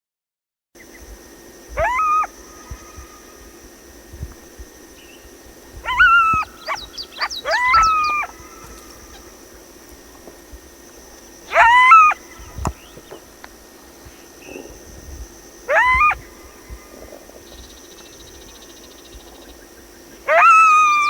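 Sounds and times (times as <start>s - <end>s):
faint high-pitched hum: 0.8s - 21.0s
coyote howling: 1.7s - 3.5s, 5.7s - 9.8s, 11.4s - 13.1s, 15.6s - 17.6s, 20.2s - 21.0s
coyote yips: 1.8s - 3.1s, 5.8s - 9.3s, 11.5s - 12.8s, 15.7s - 16.4s, 20.3s - 21.0s.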